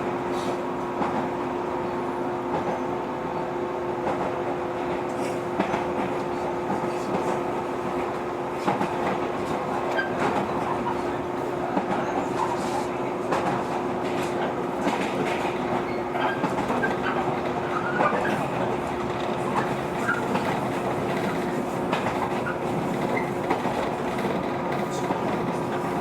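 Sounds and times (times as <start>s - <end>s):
electric train hum: 0.0s - 26.0s
rail clicks and clatter: 0.3s - 1.5s, 2.4s - 26.0s
train wheels rumbling: 2.2s - 26.0s.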